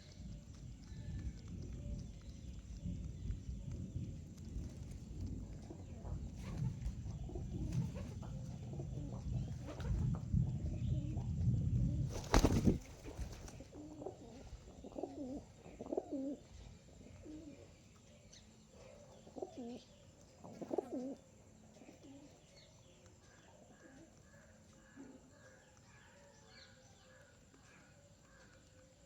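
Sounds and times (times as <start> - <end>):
pigeons cooing: 0.0 - 29.0
low rumble: 0.1 - 12.9.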